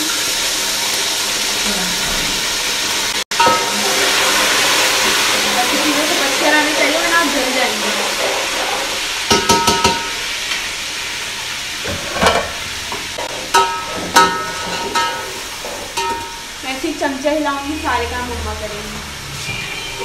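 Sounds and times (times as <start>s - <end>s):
onions sizzling in hot oil: 0.0s - 20.0s
metal spoon clanking against pot: 9.3s - 10.2s, 13.2s - 16.4s.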